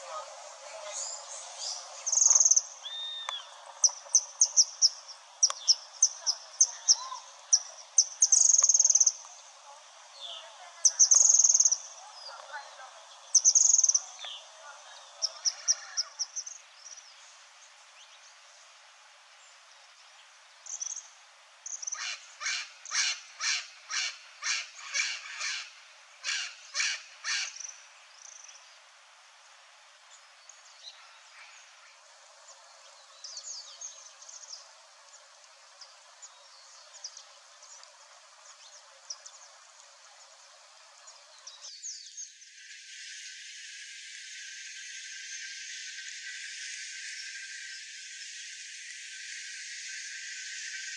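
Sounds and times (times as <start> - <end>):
wild birds calling: 21.8 - 27.7.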